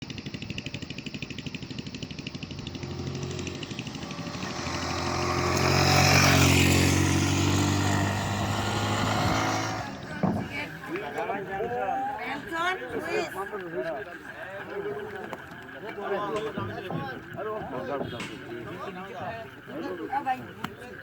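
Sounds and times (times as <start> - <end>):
motorcycle engine running: 0.0 - 11.5.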